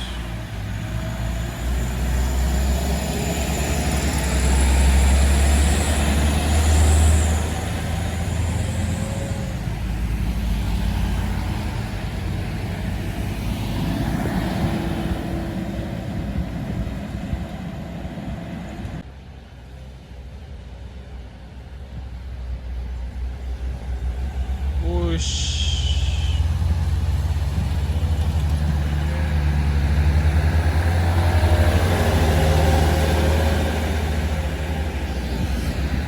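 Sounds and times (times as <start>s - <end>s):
diesel truck engine rumbling: 0.0s - 19.0s, 22.1s - 36.0s
traffic noise: 0.0s - 36.0s
high whine: 24.8s - 26.8s.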